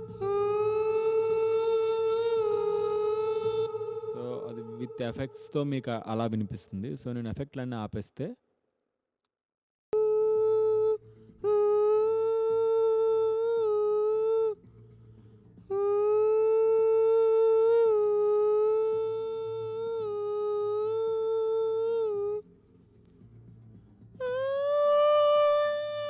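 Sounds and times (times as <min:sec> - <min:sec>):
man singing held notes: 0:02.4 - 0:07.7.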